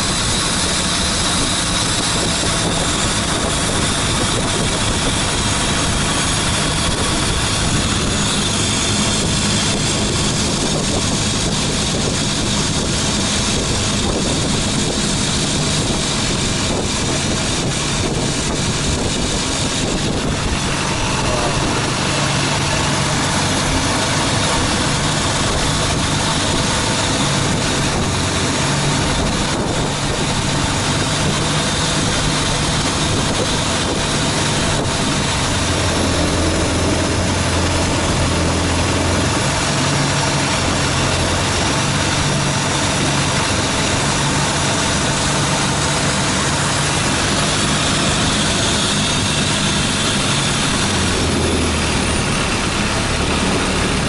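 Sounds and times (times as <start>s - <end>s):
boat engine running: 0.0s - 54.0s
broad rushing noise: 0.0s - 54.0s.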